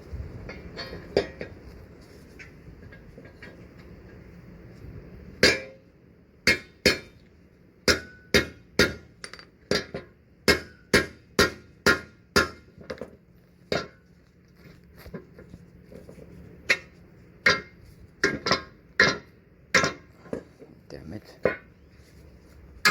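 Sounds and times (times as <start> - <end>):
hammer striking metal punch: 5.4 - 5.8, 7.8 - 12.7.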